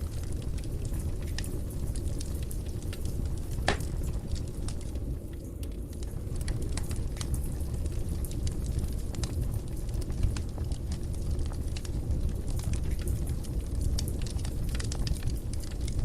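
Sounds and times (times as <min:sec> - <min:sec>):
low rumble of flame: 0:00.0 - 0:16.0
wood fire crackling: 0:00.0 - 0:16.0
sharp pops of fire: 0:02.9 - 0:04.9.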